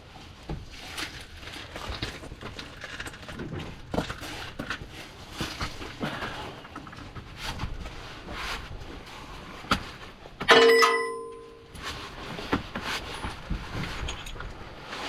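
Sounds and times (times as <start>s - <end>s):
metal tools clicking and knocking: 10.5s - 11.6s
ringing metallic clang: 10.5s - 11.6s.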